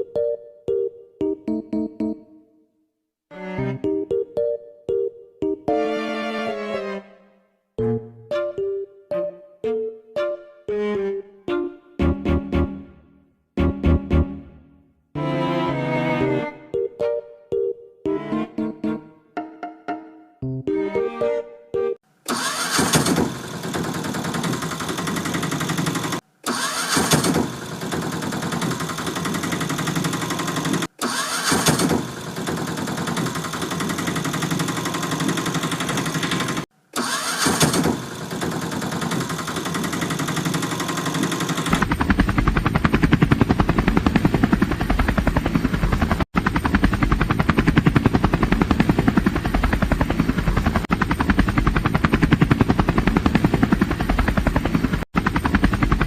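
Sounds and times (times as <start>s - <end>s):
cartoon engine starting and running: 22.3s - 56.0s
rapid helicopter-like beating: 22.5s - 56.0s.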